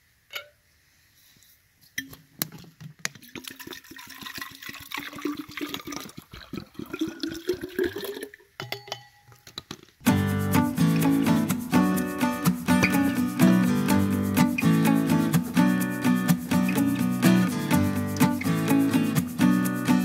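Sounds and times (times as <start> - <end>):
water pouring into bottle: 3.1 - 8.6
acoustic guitar music: 10.0 - 20.0.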